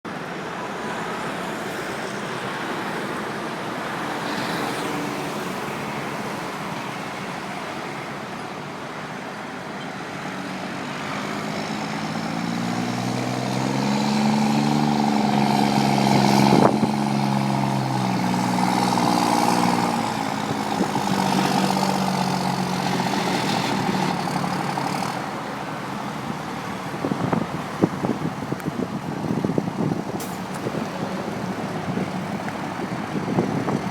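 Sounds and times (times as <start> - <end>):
truck diesel engine pulling away: 10.0 - 33.9.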